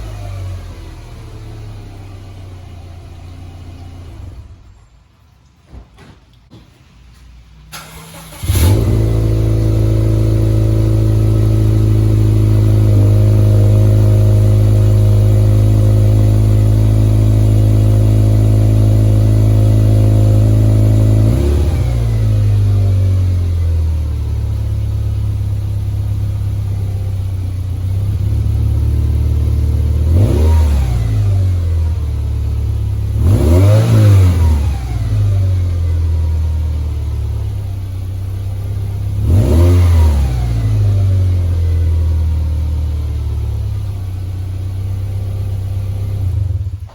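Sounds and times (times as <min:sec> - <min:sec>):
car engine idling and revving: 0:00.0 - 0:05.2, 0:07.7 - 0:46.9.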